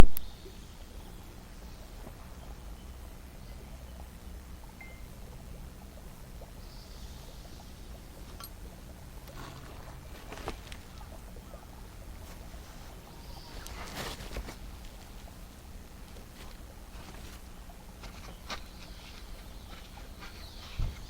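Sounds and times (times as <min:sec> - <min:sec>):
campfire crackling: 0:04.1 - 0:21.0
rustle: 0:06.0 - 0:21.0.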